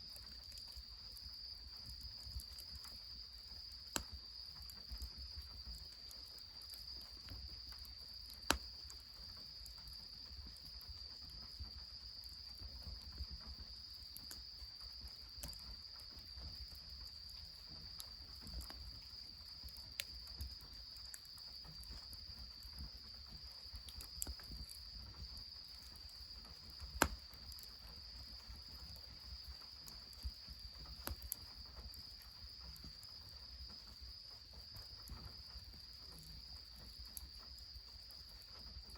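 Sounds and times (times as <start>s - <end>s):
insects chirring: 0.0s - 38.9s
sharp clicks and pops: 3.9s - 4.2s, 8.3s - 9.0s, 26.8s - 27.6s, 30.9s - 31.4s.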